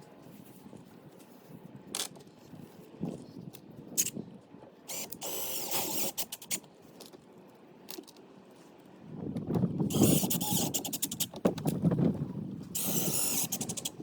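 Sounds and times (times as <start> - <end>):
short whirring rasp: 4.9 - 6.6, 9.9 - 11.3, 12.7 - 14.0.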